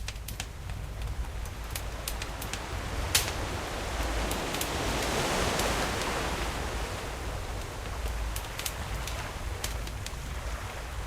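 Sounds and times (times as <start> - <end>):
sharp fire pops: 0.0 - 3.4
campfire crackling: 0.0 - 11.0
ocean waves washing: 0.5 - 11.0.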